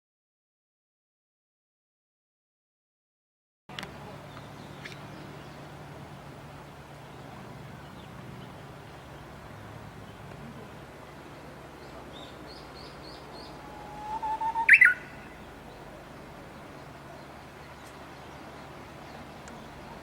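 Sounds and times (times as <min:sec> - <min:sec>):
steady background hiss: 0:03.7 - 0:20.0
bird chirping: 0:11.8 - 0:20.0.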